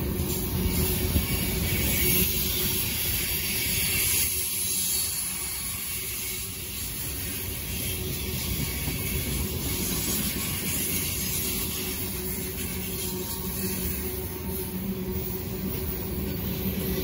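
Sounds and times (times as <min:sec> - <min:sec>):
freight train wheels rumbling on rail: 0:00.0 - 0:17.0
high hiss: 0:00.0 - 0:17.0.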